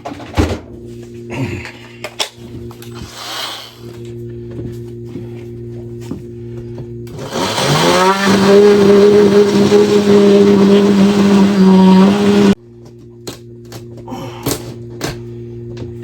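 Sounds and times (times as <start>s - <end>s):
power saw cutting wall: 7.1s - 12.6s.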